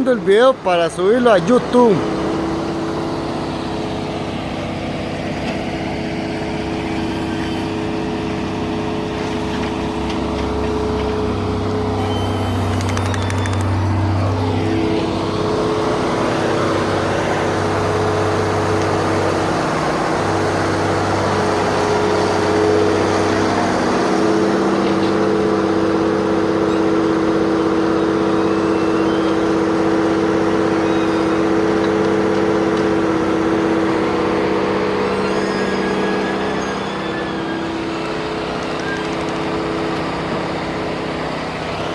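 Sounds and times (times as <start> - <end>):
engine running: 0.0 - 41.9.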